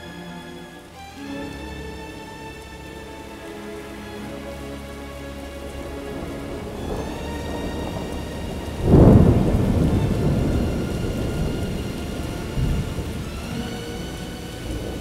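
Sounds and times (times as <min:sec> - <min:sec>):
steady rain: 0:00.0 - 0:15.0
thunder rumbling: 0:05.6 - 0:15.0.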